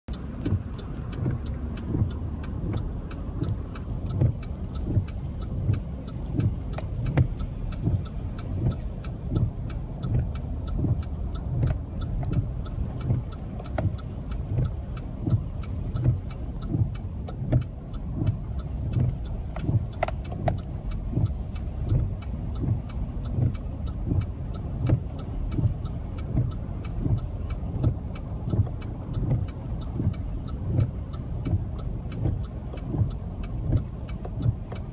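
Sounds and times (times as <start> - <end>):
constant low rumble: 0.1 - 34.9
rain drops hitting a car: 0.1 - 34.9
regular low thumping: 0.2 - 34.9.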